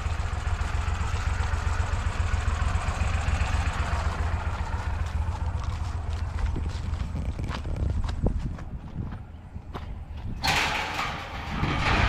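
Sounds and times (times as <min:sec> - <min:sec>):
engine running with low rumble: 0:00.0 - 0:12.0.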